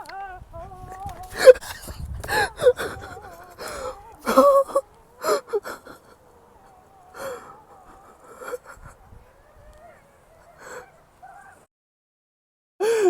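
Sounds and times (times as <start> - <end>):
person gasping breathily: 1.3 - 9.2, 10.5 - 11.0.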